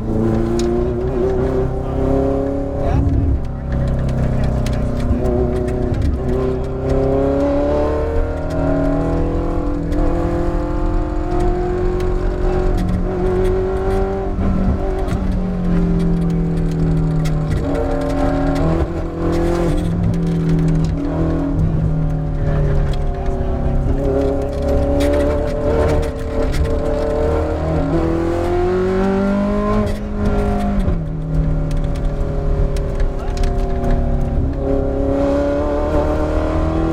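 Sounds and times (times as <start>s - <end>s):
race car engine revving: 0.0s - 36.9s.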